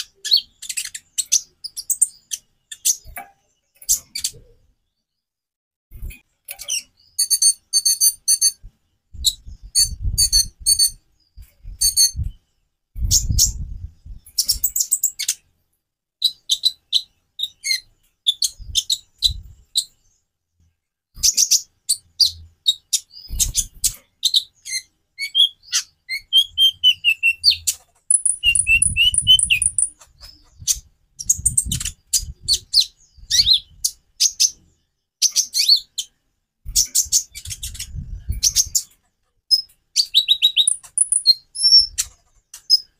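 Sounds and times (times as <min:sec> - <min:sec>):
sunbird singing: 0:24.3 - 0:36.1, 0:39.5 - 0:42.0.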